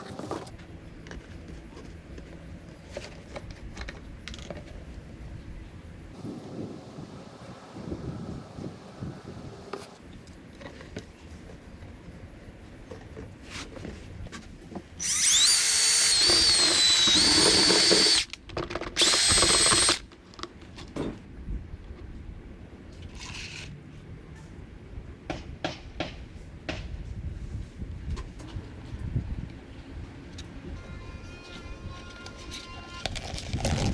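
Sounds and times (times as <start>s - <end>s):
electric drill whine: 15.0s - 18.3s, 19.0s - 20.0s.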